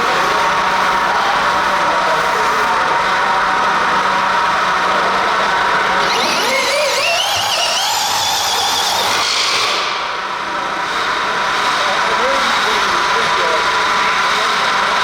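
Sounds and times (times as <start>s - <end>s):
model motor whining: 0.2s - 10.0s.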